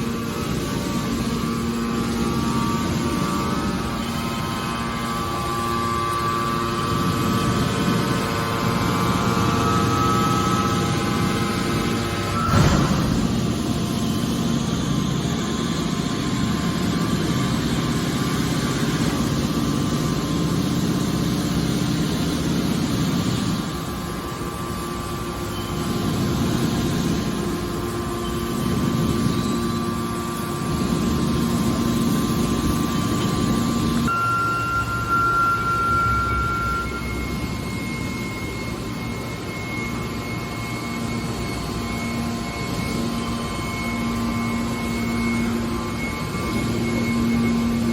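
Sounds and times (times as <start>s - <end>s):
hydraulic baler machinery running: 0.0s - 47.9s
high steady tone: 34.1s - 47.9s.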